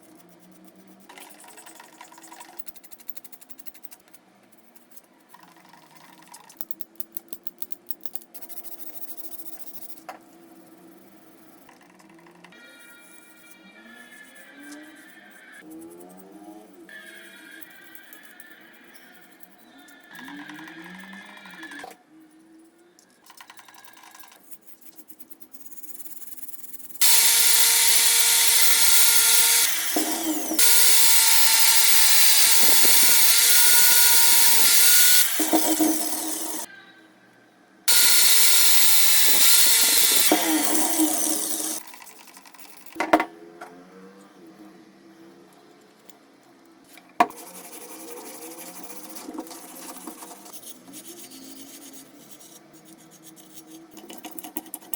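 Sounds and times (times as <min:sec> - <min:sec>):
power tool motor whine: 0:27.0 - 0:36.7, 0:37.9 - 0:41.8
hand rubbing and scraping: 0:47.3 - 0:54.9.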